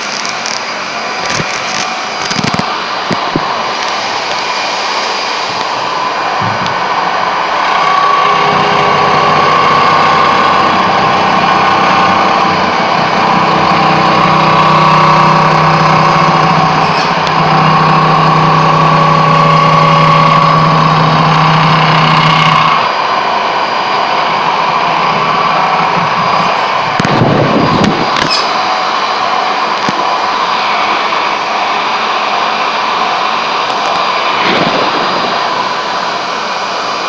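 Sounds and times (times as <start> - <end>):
power tool grinding marble: 7.6 - 22.9.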